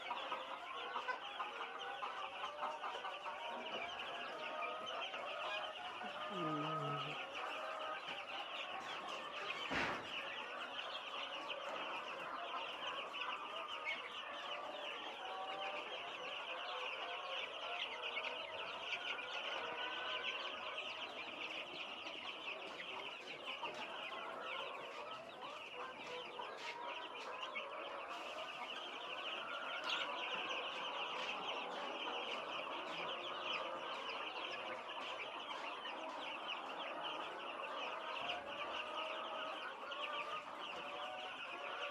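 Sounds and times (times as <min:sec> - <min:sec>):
chicks peeping: 0:00.0 - 0:41.9.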